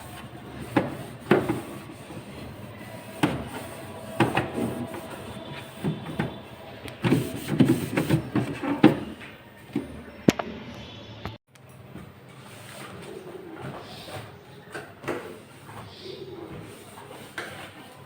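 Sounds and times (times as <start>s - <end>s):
rubbing and scrubbing plastic: 0.0s - 9.2s, 15.2s - 18.0s.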